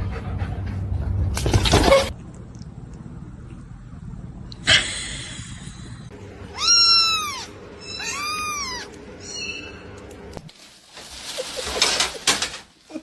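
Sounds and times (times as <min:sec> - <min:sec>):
cat meowing: 0:06.5 - 0:09.0.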